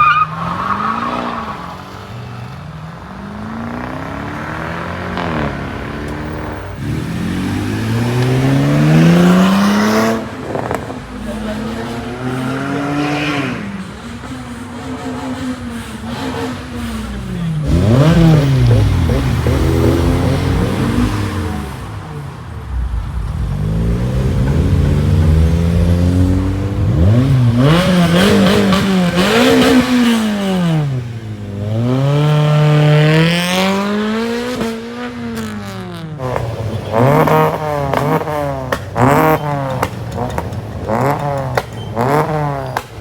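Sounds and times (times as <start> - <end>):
car engines revving: 0.0 - 43.0
sharp exhaust pops: 36.2 - 43.0.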